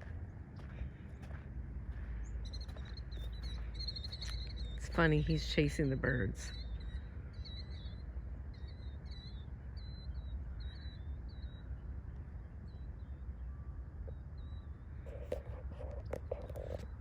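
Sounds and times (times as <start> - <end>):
steady low rumble: 0.0 - 17.0
small bird chirping: 2.4 - 5.2.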